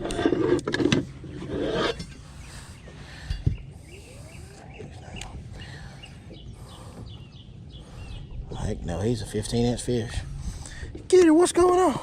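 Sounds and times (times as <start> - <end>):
faint bird chirps: 2.1 - 8.8.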